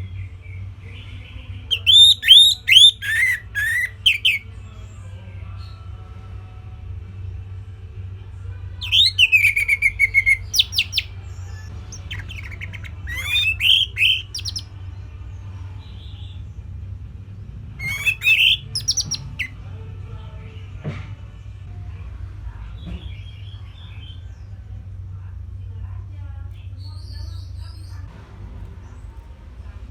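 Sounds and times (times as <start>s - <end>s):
steady low hum: 0.0s - 29.9s
bird singing whistled trills: 1.7s - 4.4s, 8.8s - 14.7s, 17.8s - 19.5s.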